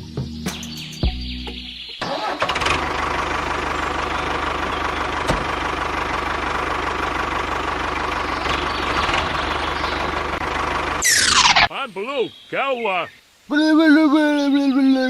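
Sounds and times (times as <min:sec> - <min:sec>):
diesel engine idling: 0:01.6 - 0:11.7.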